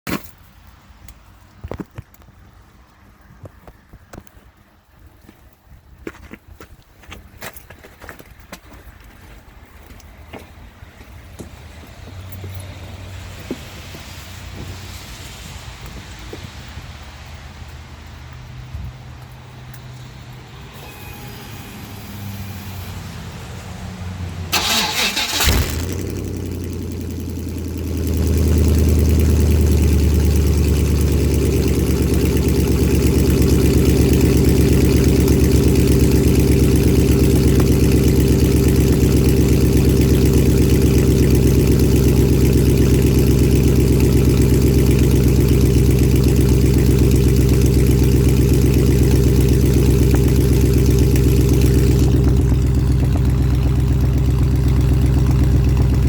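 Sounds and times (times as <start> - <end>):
loud engine idling: 24.5 - 56.0
starter cranking: 24.6 - 43.7.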